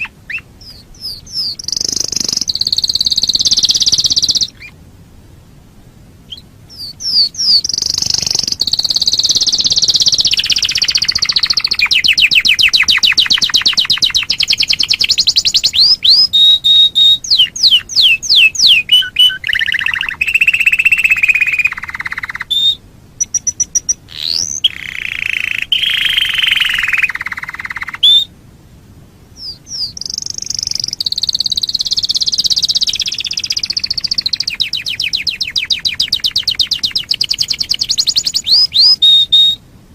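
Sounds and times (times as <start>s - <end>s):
canary singing trills: 0.0s - 4.8s, 6.3s - 28.3s, 29.4s - 39.6s.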